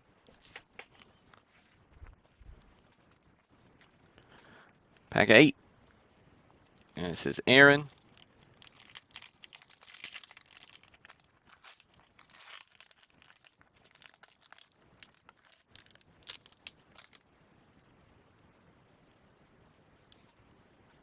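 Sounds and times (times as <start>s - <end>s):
wrapper crinkling and tearing: 0.3s - 1.1s, 7.8s - 17.2s.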